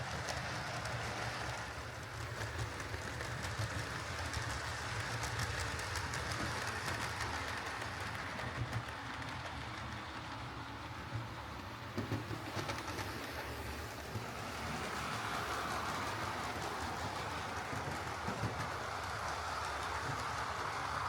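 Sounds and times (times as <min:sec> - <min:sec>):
model train motor whirring: 0:12.0 - 0:21.0.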